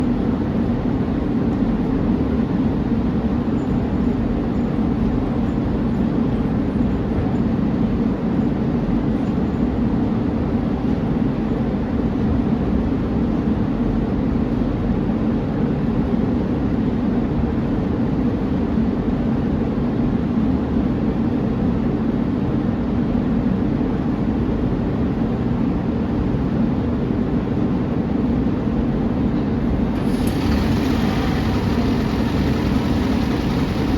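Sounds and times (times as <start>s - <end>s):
bus diesel engine idling: 29.6s - 33.9s.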